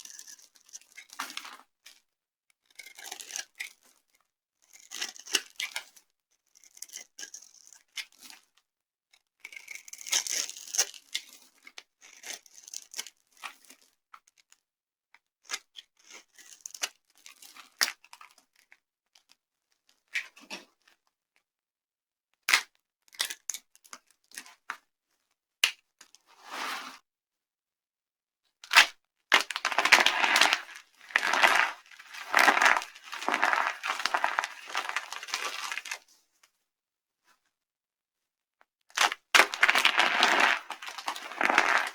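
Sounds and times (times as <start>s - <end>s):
dry soap crackling and crunching: 29.3s - 36.0s, 39.0s - 41.9s.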